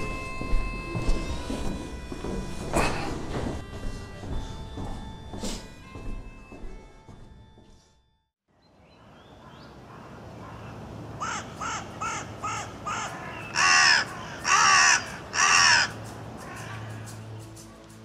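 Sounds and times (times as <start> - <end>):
bird calling: 8.8 - 17.2.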